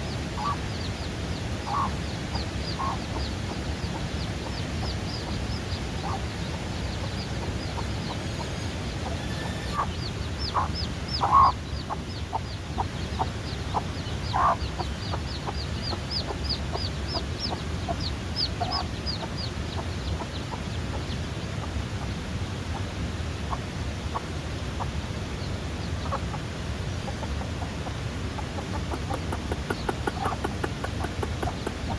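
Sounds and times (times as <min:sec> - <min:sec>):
chicks peeping: 0:00.0 - 0:31.9
chicken clucking: 0:00.4 - 0:00.8, 0:01.6 - 0:22.1, 0:25.8 - 0:26.4, 0:27.0 - 0:31.9.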